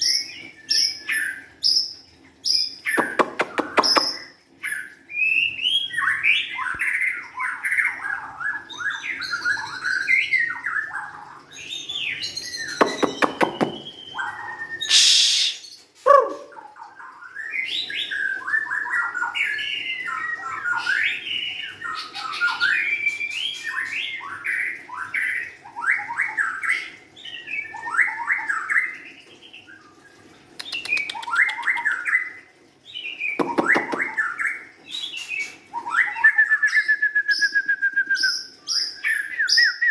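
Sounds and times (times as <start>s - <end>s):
bird singing whistled phrases: 12.6s - 16.5s, 35.8s - 39.9s
harsh bird notes: 14.9s - 16.5s.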